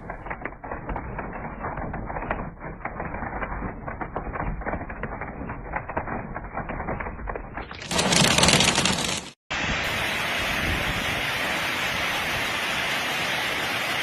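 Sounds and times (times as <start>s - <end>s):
hailstones pelting: 0.0s - 9.4s
steady rushing noise: 7.9s - 14.0s.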